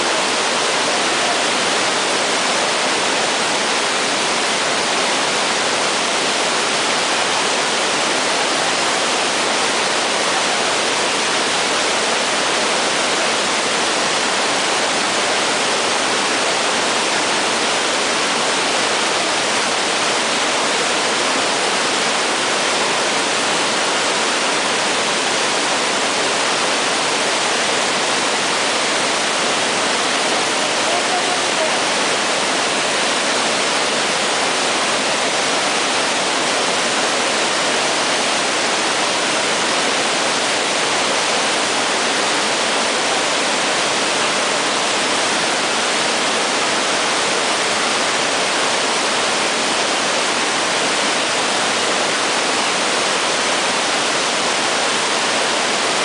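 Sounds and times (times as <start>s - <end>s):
floodwater rushing in river: 0.0s - 56.0s.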